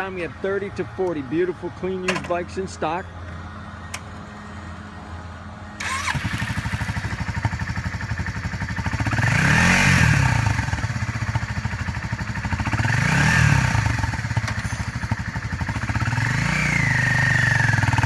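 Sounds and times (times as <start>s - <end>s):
motorcycle engine idling and revving: 3.2s - 18.0s.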